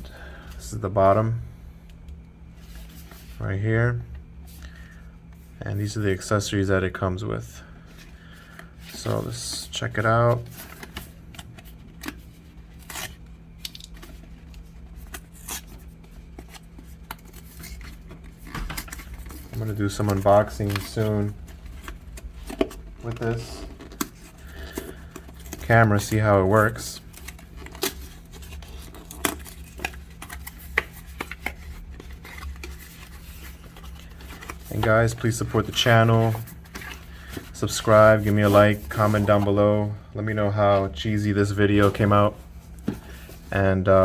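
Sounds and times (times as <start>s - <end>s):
faint low hum: 0.0s - 44.0s
packaging rustling and crinkling: 8.1s - 39.9s.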